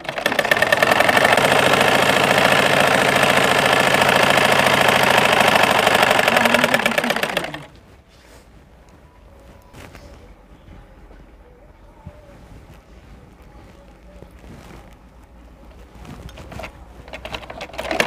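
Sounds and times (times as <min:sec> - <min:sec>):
sewing machine stitching: 0:00.0 - 0:07.8, 0:16.2 - 0:18.0.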